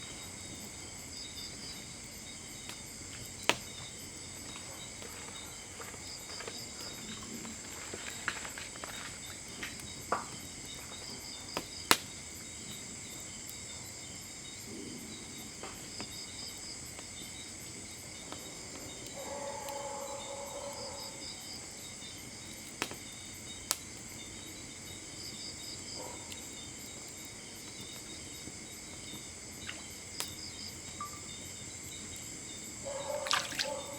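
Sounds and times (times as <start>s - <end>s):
burning wood popping: 0.0s - 19.7s, 21.9s - 33.9s
crickets chirring: 0.0s - 33.9s.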